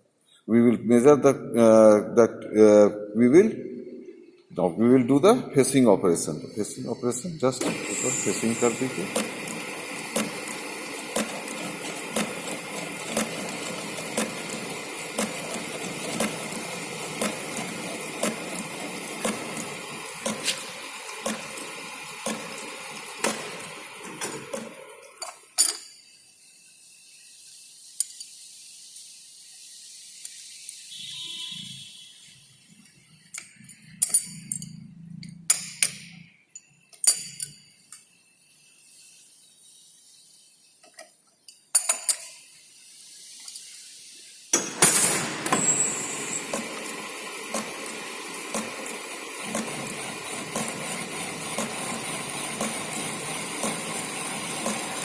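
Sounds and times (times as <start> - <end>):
lathe machining steel: 6.4 - 25.3, 44.6 - 55.0
metallic clinks and knocks: 33.4 - 38.2.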